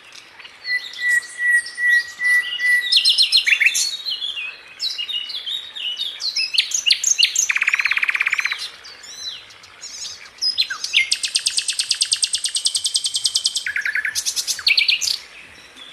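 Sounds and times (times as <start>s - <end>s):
songbirds chirping and whistling: 0.0s - 15.9s
rapid bird trill: 6.5s - 8.7s.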